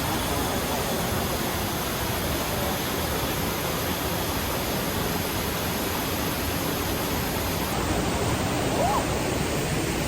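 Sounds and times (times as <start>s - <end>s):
river water rushing over rocks: 0.0s - 10.0s.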